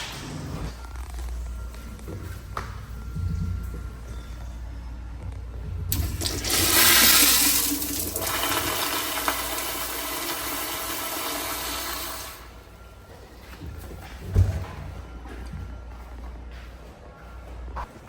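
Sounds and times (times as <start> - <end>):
toilet flushing: 5.9 - 12.6.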